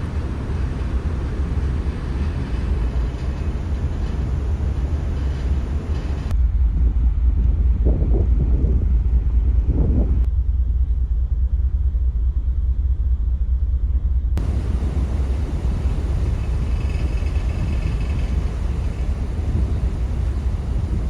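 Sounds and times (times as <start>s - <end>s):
low rumble of moving vehicle: 0.0s - 21.0s.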